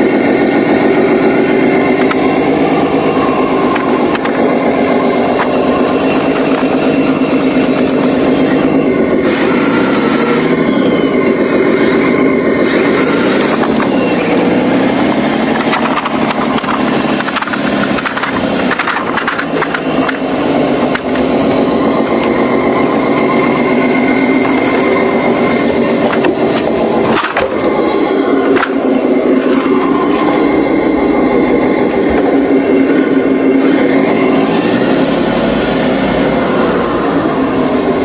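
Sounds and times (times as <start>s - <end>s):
heavy truck engine under load: 0.0s - 38.0s
knocks and rattles: 15.4s - 21.3s, 25.9s - 27.7s.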